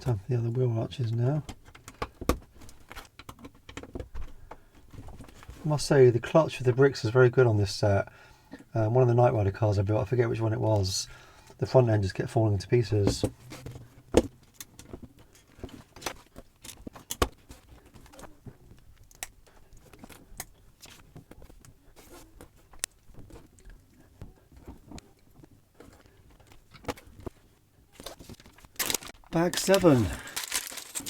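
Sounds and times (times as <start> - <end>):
plastic bricks clicking: 28.8 - 31.0.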